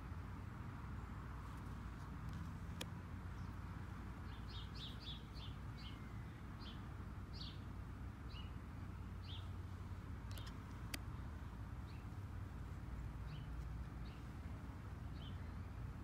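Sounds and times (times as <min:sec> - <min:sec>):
faint background noise: 0:00.0 - 0:16.0
bird chirping: 0:03.3 - 0:12.3, 0:13.1 - 0:16.0.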